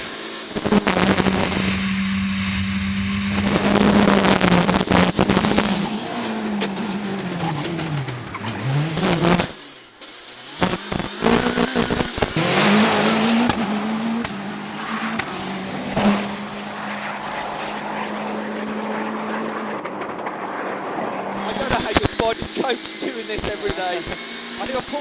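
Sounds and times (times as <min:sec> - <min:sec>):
rally car engine at speed: 0:00.0 - 0:25.0
sharp bangs: 0:00.6 - 0:09.6, 0:12.3 - 0:17.9.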